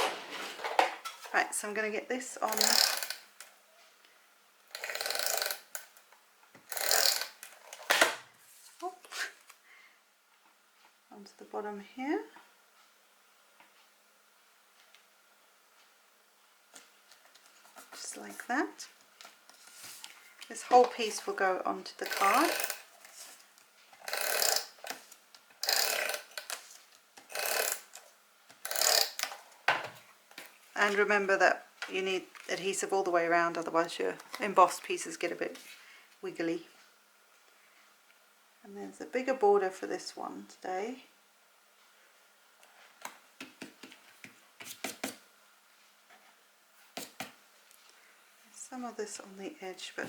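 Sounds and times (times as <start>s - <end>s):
tape runner rasping on card: 6.6s - 8.2s, 22.0s - 23.2s, 24.0s - 28.0s.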